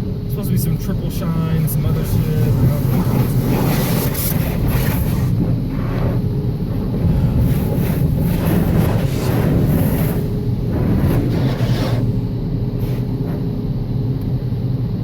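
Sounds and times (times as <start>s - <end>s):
car wash low rumble: 0.0s - 15.0s.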